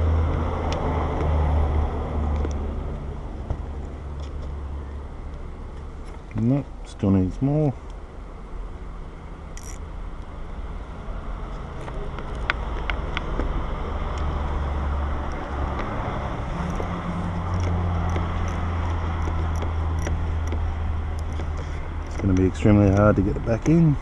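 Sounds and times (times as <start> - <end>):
vehicle engine humming: 0.0 - 24.0
socket ratchet clicking: 9.6 - 9.9, 16.6 - 23.8.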